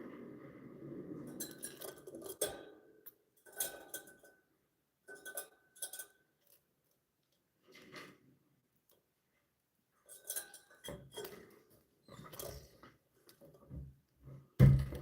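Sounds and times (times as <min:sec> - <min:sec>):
light clinks and rattles: 0:01.3 - 0:06.6, 0:10.0 - 0:12.7.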